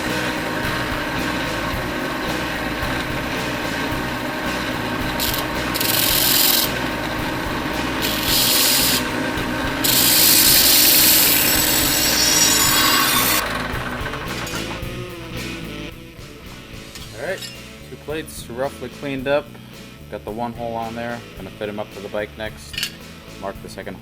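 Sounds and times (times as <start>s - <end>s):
grinder grinding metal: 0.0s - 17.7s.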